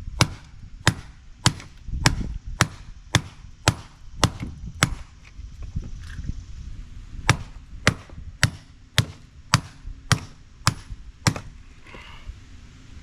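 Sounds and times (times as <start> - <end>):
sledgehammer blows on metal: 0.0 - 5.2, 7.2 - 12.2.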